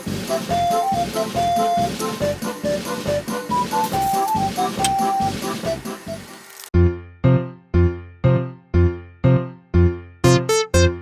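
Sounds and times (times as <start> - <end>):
electric piano chords: 9.8 - 11.0.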